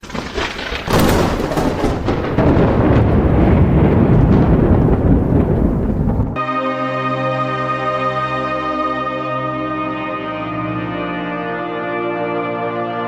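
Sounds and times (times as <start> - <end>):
thunder crack and rumble: 0.0 - 6.4
ambient music: 6.4 - 13.0.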